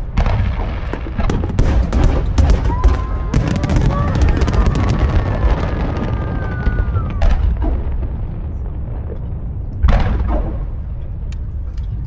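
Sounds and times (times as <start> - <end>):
fireworks bursting: 0.0 - 8.6
deep rumble of booms: 0.0 - 12.0.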